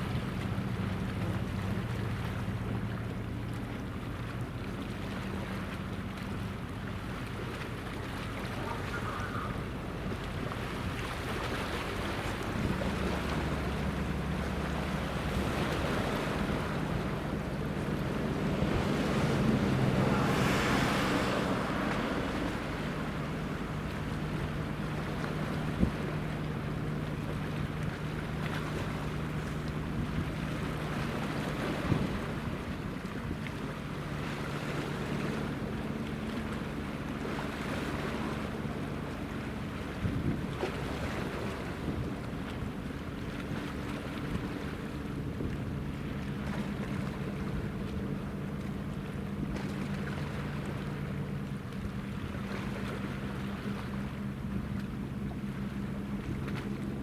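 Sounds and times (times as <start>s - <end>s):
boat engine hum: 0.0s - 57.0s
rush of water: 0.0s - 57.0s
waves washing: 0.0s - 57.0s
wind on microphone: 11.9s - 26.9s, 29.3s - 33.5s, 39.8s - 48.2s.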